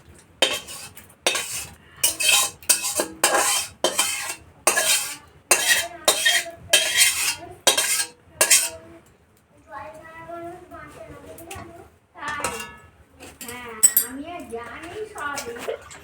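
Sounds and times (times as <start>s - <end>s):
metal spoon scraping a pan: 0.4s - 8.9s, 12.3s - 14.1s.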